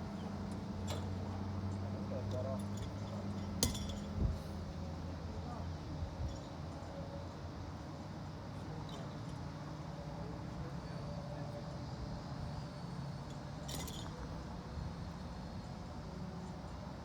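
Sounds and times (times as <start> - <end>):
short metallic clink: 3.4 - 4.2.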